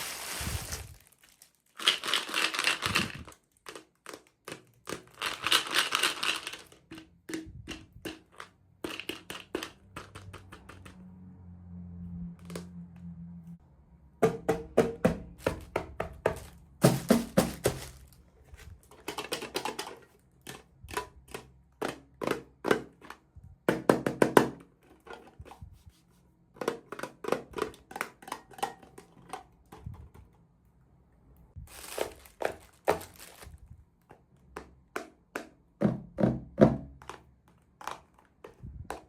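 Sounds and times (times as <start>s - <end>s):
plastic pieces clicking and tapping: 1.8s - 11.0s, 18.8s - 25.4s, 34.0s - 35.9s, 36.9s - 39.0s.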